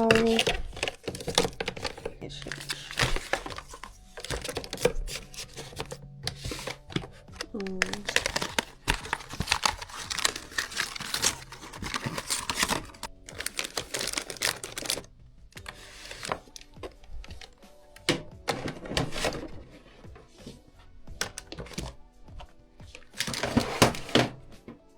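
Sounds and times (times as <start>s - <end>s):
plastic packets rustling and clicking: 0.0s - 20.2s, 21.0s - 24.4s.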